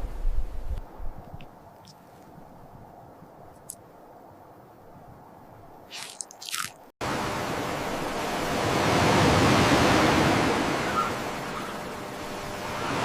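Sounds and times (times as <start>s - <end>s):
short crunches: 5.9s - 6.8s.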